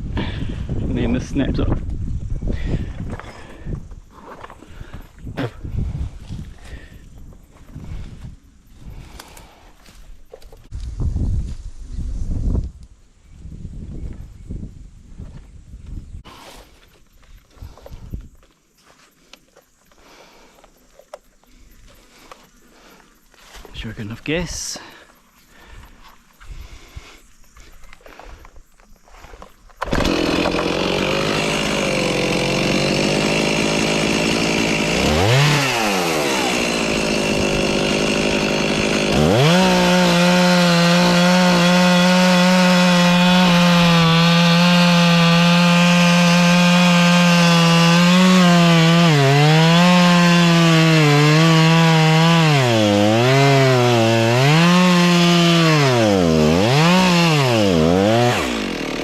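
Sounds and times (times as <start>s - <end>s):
chainsaw cutting wood: 29.8s - 59.0s.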